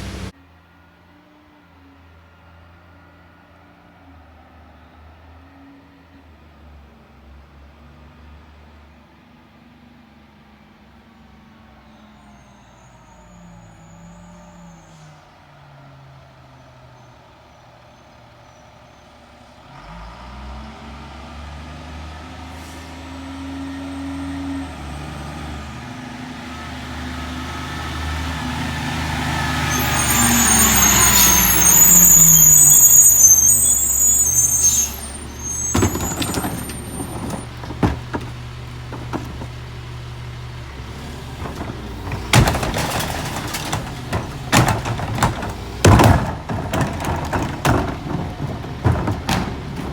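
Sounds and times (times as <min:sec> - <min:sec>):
garbage truck diesel engine: 0:00.0 - 0:00.4, 0:11.1 - 0:49.9
air brake squeal: 0:11.9 - 0:15.4, 0:22.5 - 0:23.2, 0:29.0 - 0:38.4, 0:41.4 - 0:49.9
sharp clanks and knocks: 0:29.6 - 0:49.9.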